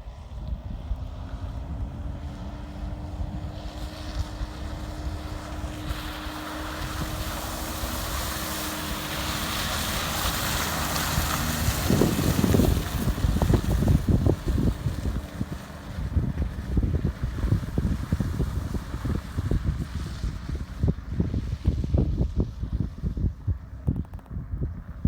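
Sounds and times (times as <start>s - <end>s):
hiss of tyres and wind: 0.0s - 25.0s
truck engine hum: 0.1s - 21.5s
heavy low thumps and rumbling: 0.4s - 25.0s.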